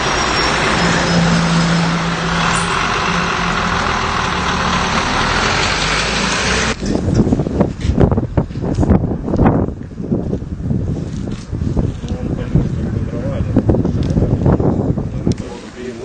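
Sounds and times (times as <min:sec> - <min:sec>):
heavy vehicle engine running: 0:00.0 - 0:09.3
gusty uneven noise: 0:00.0 - 0:16.0.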